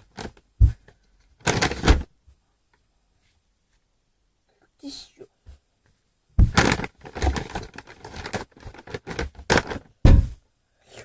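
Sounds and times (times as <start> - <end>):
tissue rustling and crackling: 6.4 - 9.9.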